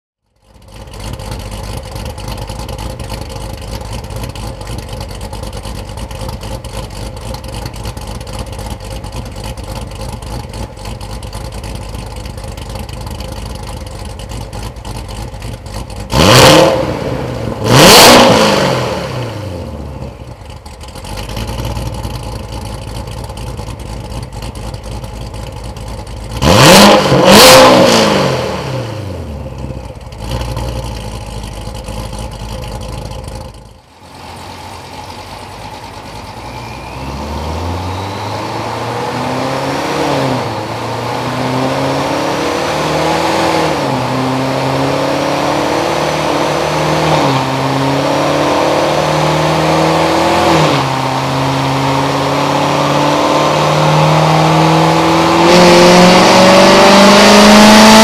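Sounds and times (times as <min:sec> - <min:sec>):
car engine idling: 0:00.2 - 0:56.4
engine revving: 0:14.4 - 0:22.5, 0:26.2 - 0:33.4, 0:34.0 - 0:58.0.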